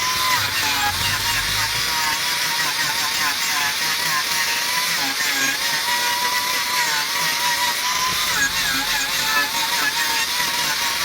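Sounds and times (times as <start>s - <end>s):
tool scraping spinning wood: 0.0s - 4.9s
wood lathe whine: 0.0s - 11.0s.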